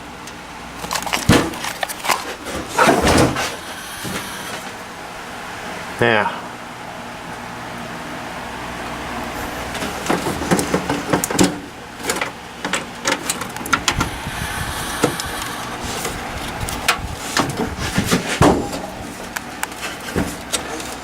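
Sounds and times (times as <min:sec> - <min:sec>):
steady low hum: 0:00.0 - 0:21.0
hands clicking and rattling computer parts: 0:00.8 - 0:03.0, 0:09.7 - 0:14.1, 0:16.0 - 0:21.0.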